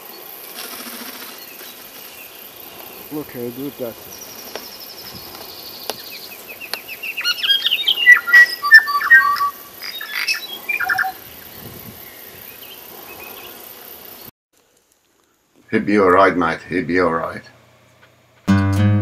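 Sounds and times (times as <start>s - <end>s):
songbird singing: 1.2s - 14.3s.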